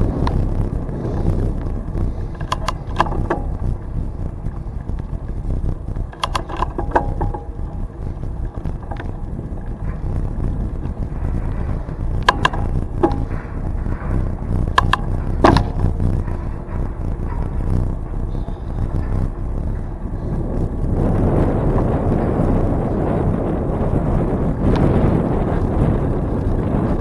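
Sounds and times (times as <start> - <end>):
wind and tyre rumble: 0.0 - 27.0
sharp clicks or knocks: 2.3 - 3.7, 6.0 - 7.9, 8.5 - 9.2, 12.1 - 16.4.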